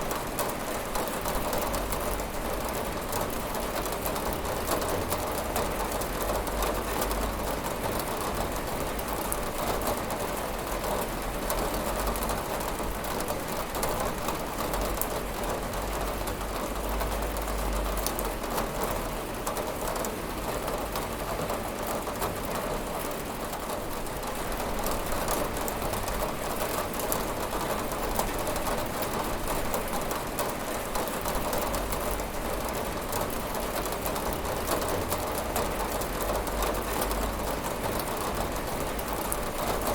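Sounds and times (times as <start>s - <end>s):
rain on a window: 0.0s - 39.9s.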